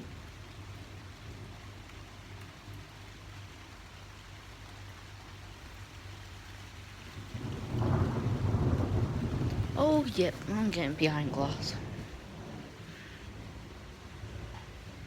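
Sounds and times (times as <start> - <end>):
steady rain: 0.0 - 15.0
thunder rumbling: 7.1 - 15.0.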